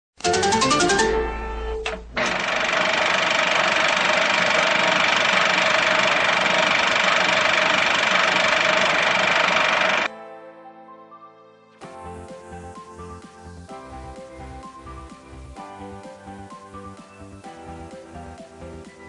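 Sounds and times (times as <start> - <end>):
loud mechanical noise with tones: 1.5 - 10.1.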